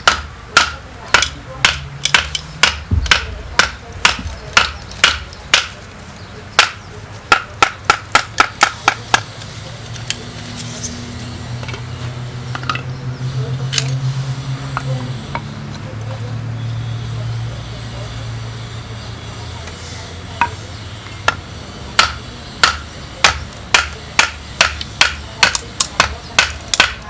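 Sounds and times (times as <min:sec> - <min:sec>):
steel striker hitting flint: 0:00.0 - 0:05.8, 0:06.6 - 0:11.0, 0:11.6 - 0:12.9, 0:20.4 - 0:27.0
low steady rumble: 0:00.0 - 0:19.0.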